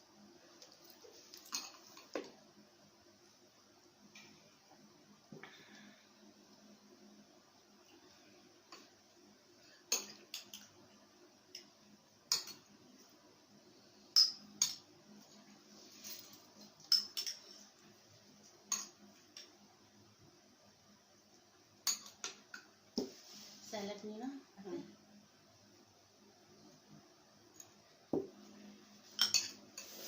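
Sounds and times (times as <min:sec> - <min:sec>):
cutlery clinking on plates: 0:16.1 - 0:17.4, 0:29.1 - 0:30.0.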